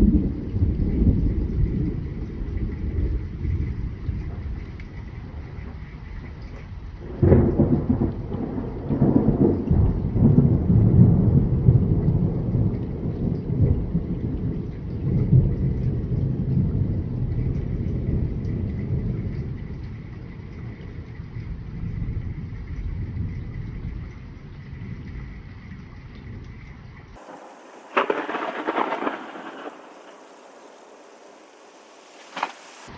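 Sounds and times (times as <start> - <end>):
rolling thunder rumble: 0.0 - 25.5, 27.2 - 32.9
thunder crack: 7.0 - 18.3, 27.2 - 32.9.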